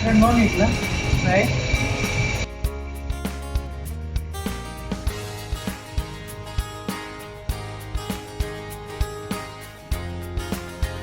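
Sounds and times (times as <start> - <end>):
noisy sound: 0.0 - 2.6
plucked-string music with beat: 2.4 - 11.0.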